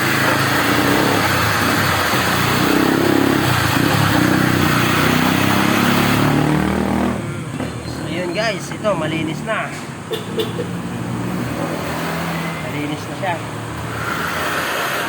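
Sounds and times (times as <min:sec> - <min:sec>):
motor running loudly: 0:00.0 - 0:06.4, 0:13.8 - 0:15.0.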